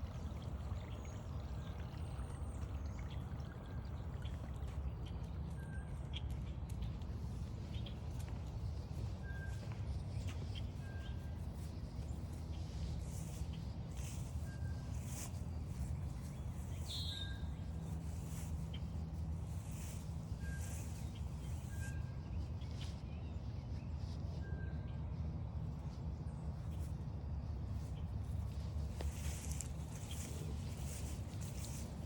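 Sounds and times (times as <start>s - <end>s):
low outdoor rumble: 0.0s - 32.0s
faint light footsteps: 4.5s - 23.1s, 27.7s - 32.0s.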